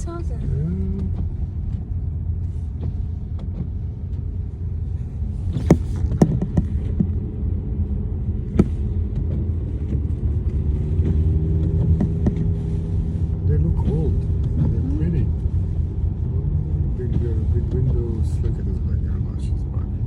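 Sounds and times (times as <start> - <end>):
car cabin road noise: 0.0 - 20.0
sharp knocks: 5.6 - 7.1, 11.8 - 12.6.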